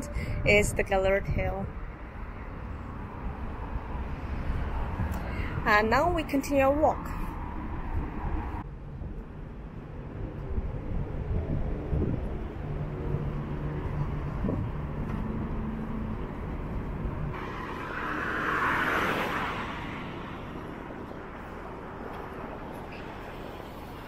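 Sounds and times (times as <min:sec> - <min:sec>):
road traffic: 0:00.0 - 0:24.0
low engine hum: 0:07.3 - 0:24.0
vehicle passing close by: 0:10.9 - 0:24.0.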